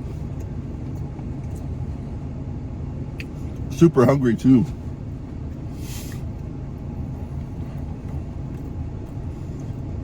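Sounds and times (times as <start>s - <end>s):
truck engine rumbling: 0.0s - 10.0s
brief hiss: 5.8s - 6.3s.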